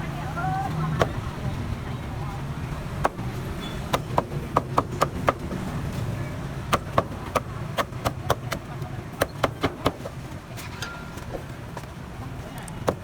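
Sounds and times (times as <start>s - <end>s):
low street rumble: 0.0s - 13.0s
cleaver chopping on wooden block: 3.9s - 5.6s, 6.7s - 8.6s.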